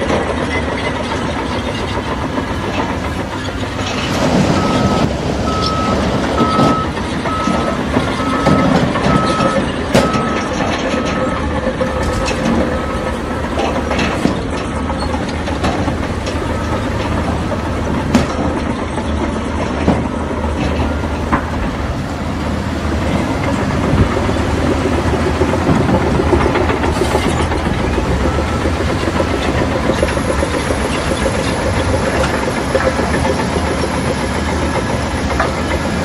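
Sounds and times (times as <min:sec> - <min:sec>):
heavy diesel machinery running: 0:00.0 - 0:36.0
knocks and clatter: 0:00.0 - 0:36.0
reversing alarm beeping: 0:04.4 - 0:18.4, 0:25.0 - 0:36.0.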